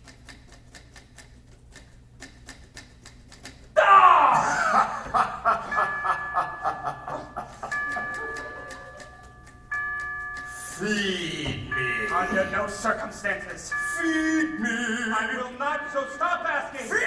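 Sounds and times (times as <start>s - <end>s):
loud laugh-like cackle: 3.8s - 9.2s
held musical tones: 3.8s - 17.0s
faint even ticking: 5.0s - 16.8s.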